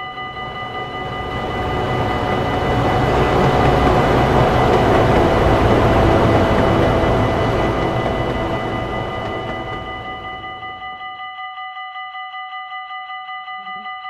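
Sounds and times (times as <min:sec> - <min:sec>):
train rushing past: 0:00.0 - 0:11.1
crossing warning bell ringing: 0:00.0 - 0:14.0.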